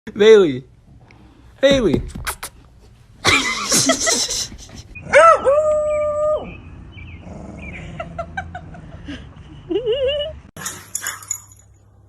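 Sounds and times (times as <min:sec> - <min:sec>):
dog yelping: 0:05.0 - 0:06.6.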